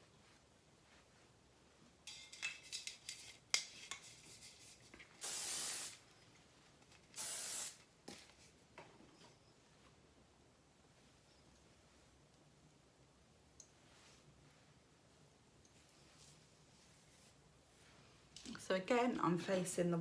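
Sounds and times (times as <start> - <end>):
aerosol spray can hissing: 5.2 - 6.0, 7.2 - 7.8
spray can rattling clicks: 7.1 - 7.8.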